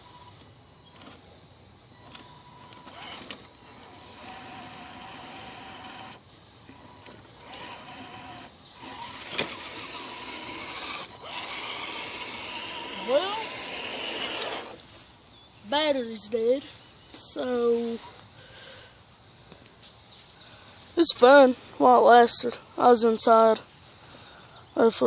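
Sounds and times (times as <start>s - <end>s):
insects droning: 0.0s - 25.0s
electric motor and gears whining: 2.0s - 15.0s
sharp clicks: 6.7s - 14.8s.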